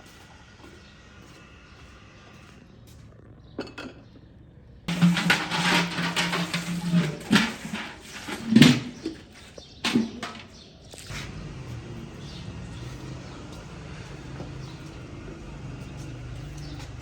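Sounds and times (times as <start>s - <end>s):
metal utensils clattering on pots: 4.9s - 11.4s.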